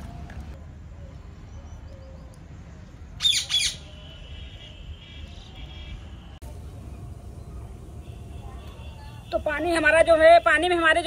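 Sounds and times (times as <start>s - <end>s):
low steady rumble: 6.4s - 9.8s.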